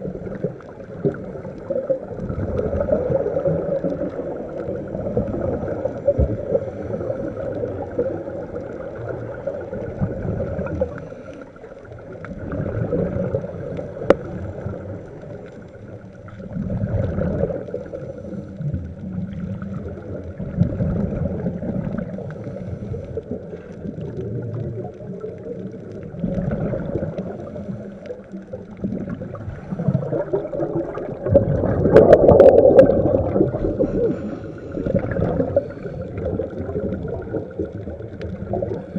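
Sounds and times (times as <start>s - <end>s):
gurgling bubble bursts: 0.0s - 11.2s, 11.8s - 38.9s
diver breathing through regulator: 33.4s - 36.4s.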